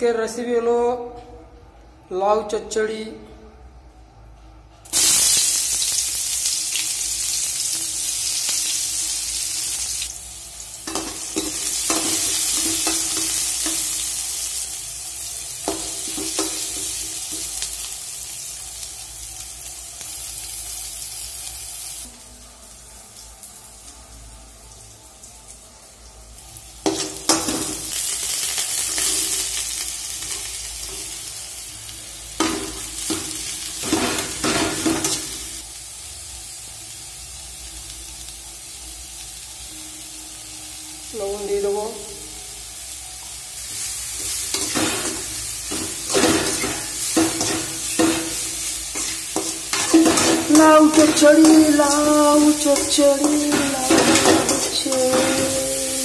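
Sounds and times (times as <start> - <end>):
onions sizzling in hot oil: 4.9 - 56.0
metal spoon scraping pan: 45.8 - 56.0.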